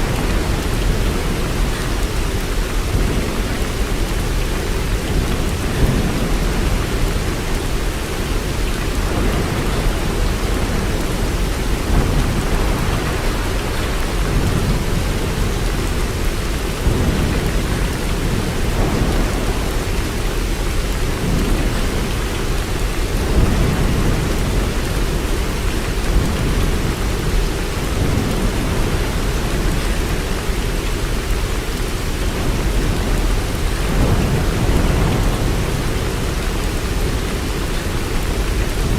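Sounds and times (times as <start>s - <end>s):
heavy rain hiss: 0.0s - 38.9s.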